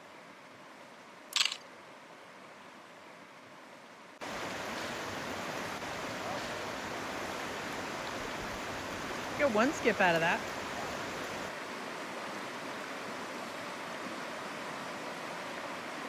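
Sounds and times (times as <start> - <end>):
camera shutter click: 1.4 - 1.6
river rushing: 4.2 - 16.0.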